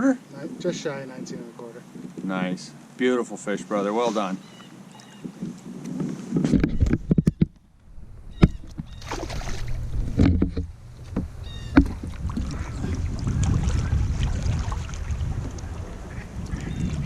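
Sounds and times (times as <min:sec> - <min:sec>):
wind rumble on microphone: 0:05.0 - 0:17.0
gear knocking on kayak: 0:10.0 - 0:12.7.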